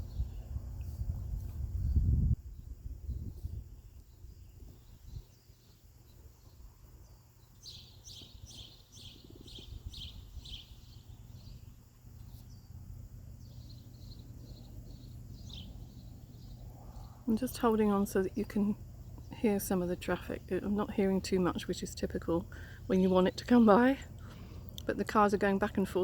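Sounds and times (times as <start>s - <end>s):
small bird chirping: 0.0s - 19.4s
low background rumble: 0.0s - 26.0s.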